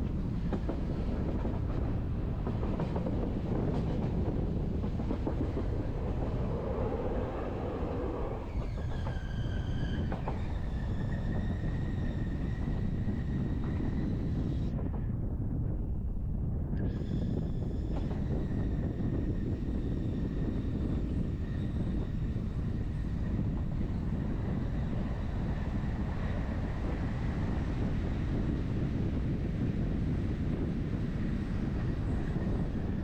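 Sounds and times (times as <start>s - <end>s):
train wheels rumbling on rail: 0.0s - 33.0s
high wheel squeal: 6.9s - 14.2s.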